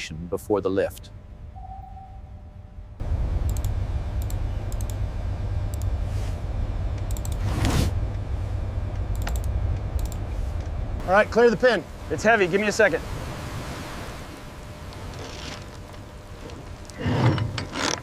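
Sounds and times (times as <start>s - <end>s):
low steady rumble: 0.0s - 18.0s
sharp clicks: 3.4s - 5.0s, 6.9s - 7.4s, 8.9s - 10.8s.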